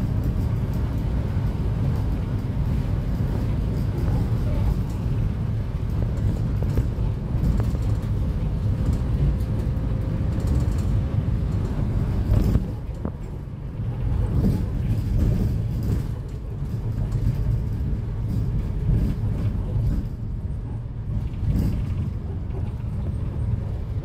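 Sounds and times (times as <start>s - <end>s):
diesel engine drone: 0.0s - 24.0s.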